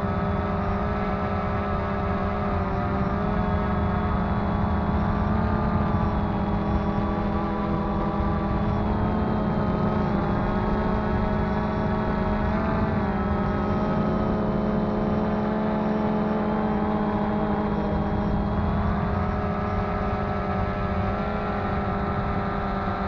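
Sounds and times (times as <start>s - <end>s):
drone propellers buzzing: 0.0s - 23.0s.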